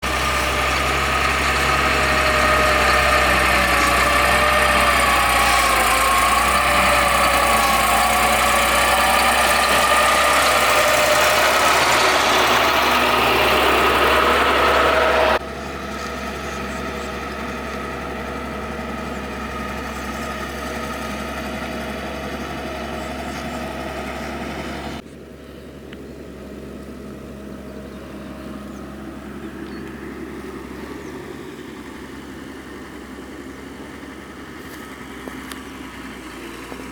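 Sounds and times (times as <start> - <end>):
heavy machinery diesel engines: 0.0 - 36.9.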